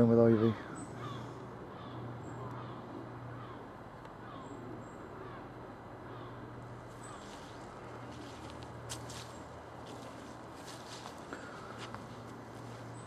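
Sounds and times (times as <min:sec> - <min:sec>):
low hum: 0:00.6 - 0:13.0
rustling: 0:06.9 - 0:13.0.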